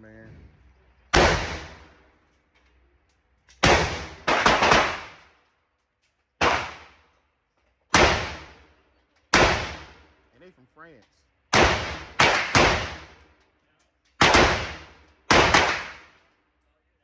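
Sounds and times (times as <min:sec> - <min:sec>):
echoing gunshots: 0:01.1 - 0:02.0, 0:03.6 - 0:05.4, 0:06.4 - 0:07.1, 0:07.9 - 0:08.7, 0:09.3 - 0:10.1, 0:11.5 - 0:13.3, 0:14.2 - 0:16.2.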